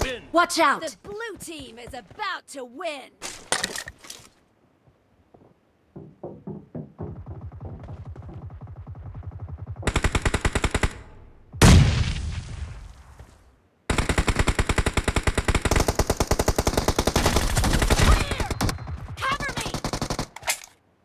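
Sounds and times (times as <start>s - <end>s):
video game automatic gunfire: 7.2s - 11.0s, 13.9s - 20.3s.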